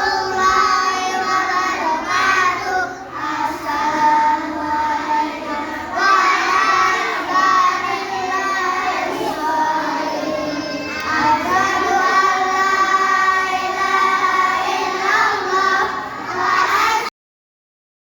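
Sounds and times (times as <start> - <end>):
children singing in unison: 0.0 - 17.1.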